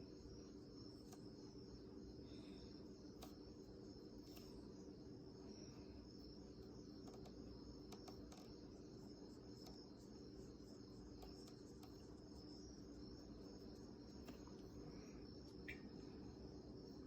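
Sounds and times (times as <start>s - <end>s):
soft ticks: 7.0s - 8.6s, 11.1s - 12.0s.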